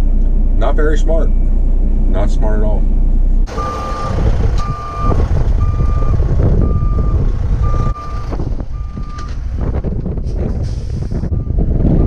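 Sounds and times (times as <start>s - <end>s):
diesel engine rumble: 0.0s - 12.0s
truck backup alarm beeping: 3.5s - 9.5s, 11.3s - 12.0s.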